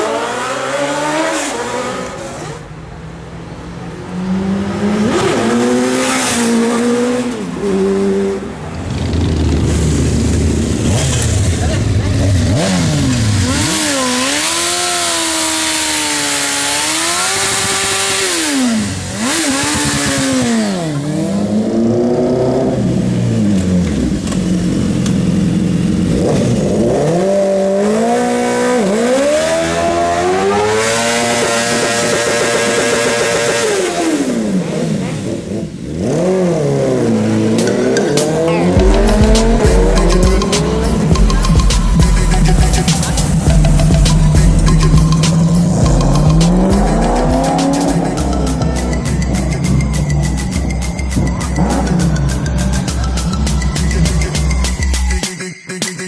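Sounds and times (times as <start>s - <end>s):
motorcycle engines revving: 0.0s - 55.3s
electronic music with heavy bass: 37.5s - 56.0s.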